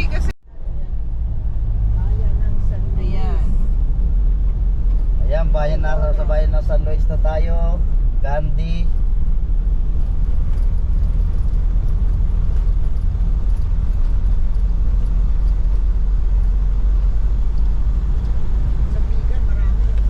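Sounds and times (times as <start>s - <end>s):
road vehicle engine and road noise: 0.0s - 20.0s.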